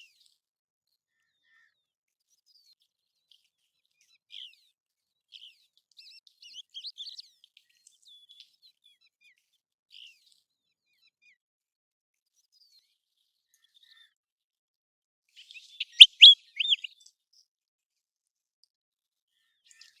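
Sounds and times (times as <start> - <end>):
bird whistled calls: 15.6 - 16.9.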